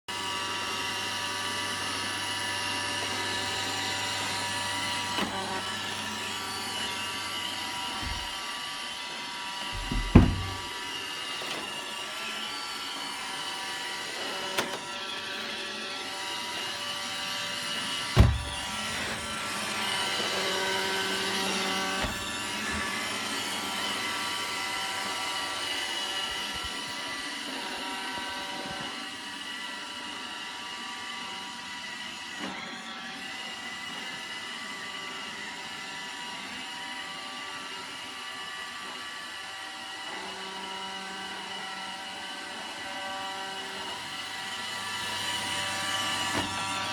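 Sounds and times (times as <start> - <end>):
robot vacuum whining: 0.1 - 46.9
loud knocks: 9.8 - 10.7.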